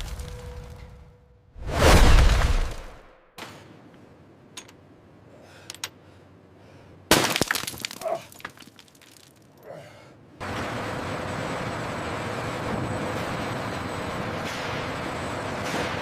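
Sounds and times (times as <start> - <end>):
glass breaking: 7.1 - 9.4.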